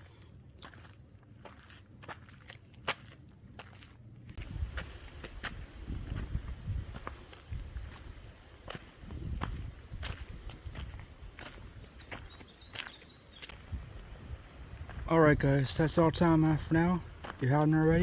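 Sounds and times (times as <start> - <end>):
footsteps on woodland trail: 0.0 - 15.1, 16.0 - 18.0
high-pitched insect chorus: 0.0 - 18.0.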